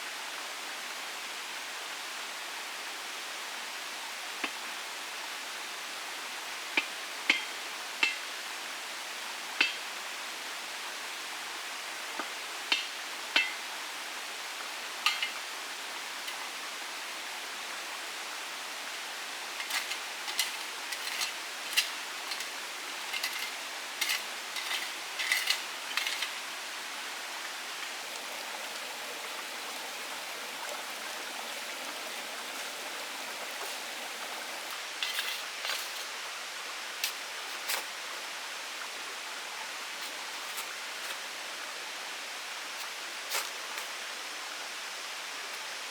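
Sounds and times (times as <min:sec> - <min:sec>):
water hissing: 0:18.9 - 0:36.1.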